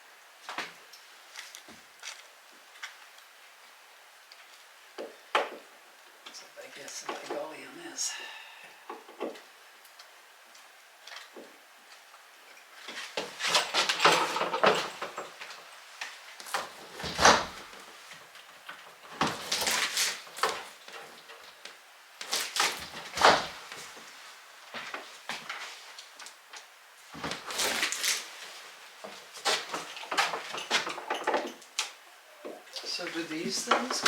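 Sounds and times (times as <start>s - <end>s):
metal door hardware knocks and rattles: 13.6s - 15.4s.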